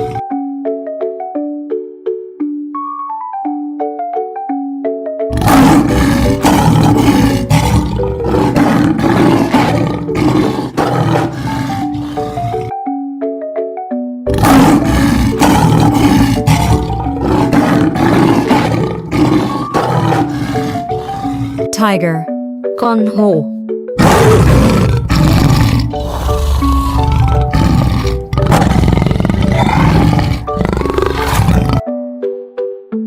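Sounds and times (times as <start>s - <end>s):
lion roaring: 0.0s - 0.2s, 5.3s - 12.7s, 14.3s - 21.7s, 24.0s - 31.8s.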